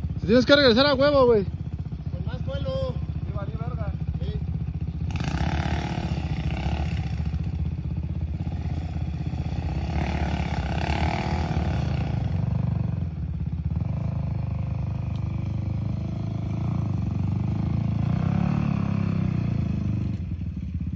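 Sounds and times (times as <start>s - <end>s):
dirt bike engine revving: 0.0s - 20.6s.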